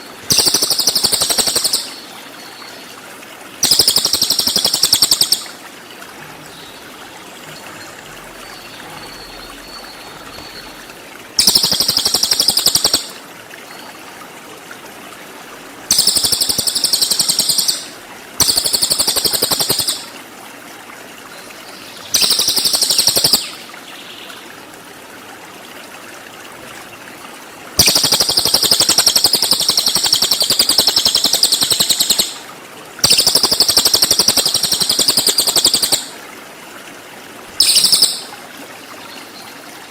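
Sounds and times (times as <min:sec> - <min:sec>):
songbird high-pitched trills: 0:03.6 - 0:05.5, 0:06.2 - 0:14.0, 0:15.9 - 0:20.1, 0:21.3 - 0:23.6, 0:33.0 - 0:36.1, 0:37.6 - 0:38.4.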